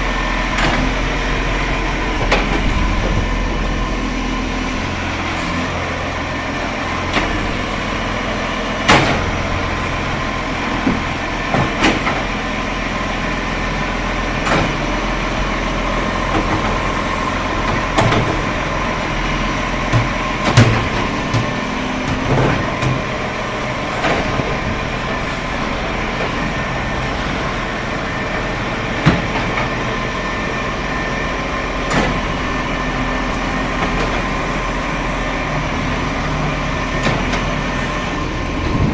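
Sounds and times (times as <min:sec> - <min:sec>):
vehicle engine hum: 0:00.0 - 0:38.9
sharp knocks and rattles: 0:19.7 - 0:23.2.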